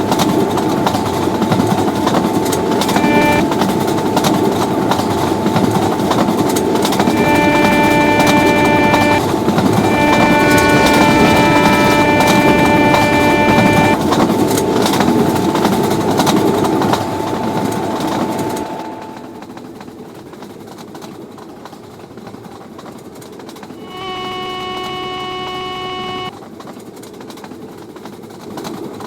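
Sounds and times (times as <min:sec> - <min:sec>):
locomotive horn: 0:00.0 - 0:19.4, 0:23.8 - 0:26.3
fast train passing: 0:00.0 - 0:19.5.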